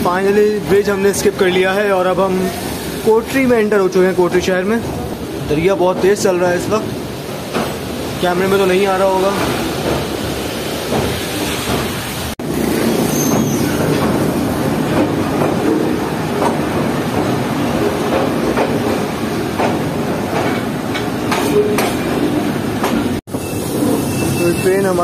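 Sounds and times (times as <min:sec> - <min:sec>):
wagons rumbling and rattling: 0:00.2 - 0:25.0
wheels clacking over rail joints: 0:04.5 - 0:24.5.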